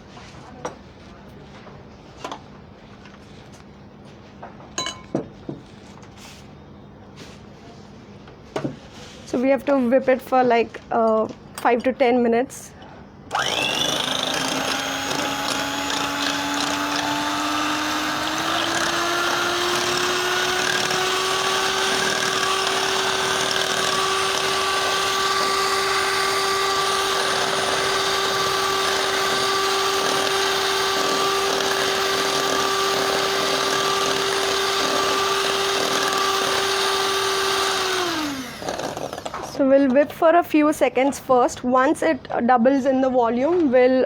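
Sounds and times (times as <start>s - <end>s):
electric mixer whipping cream: 13.3s - 39.6s.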